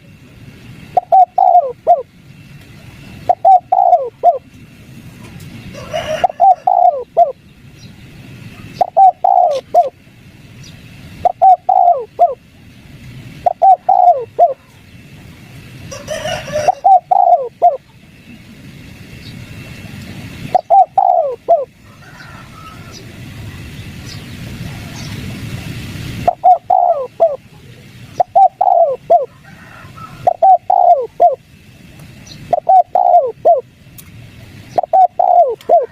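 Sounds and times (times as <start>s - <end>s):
dove cooing: 0.8s - 2.1s, 3.1s - 4.5s, 5.7s - 7.4s, 8.6s - 10.0s, 11.2s - 12.4s, 13.4s - 14.9s, 15.8s - 17.9s, 20.5s - 23.1s, 26.2s - 31.5s, 32.3s - 33.7s, 34.7s - 35.9s.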